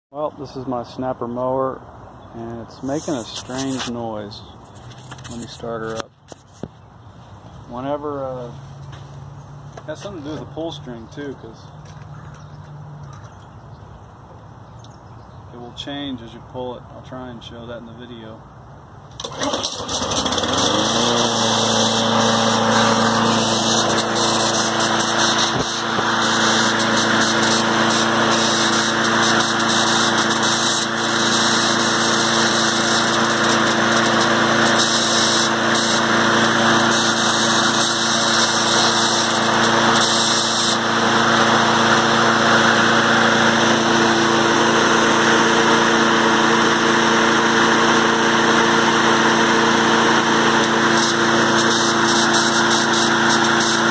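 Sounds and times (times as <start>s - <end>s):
lawn mower engine revving: 2.7s - 4.5s, 19.1s - 53.9s
strange mechanical noise: 19.2s - 47.0s, 50.2s - 53.9s.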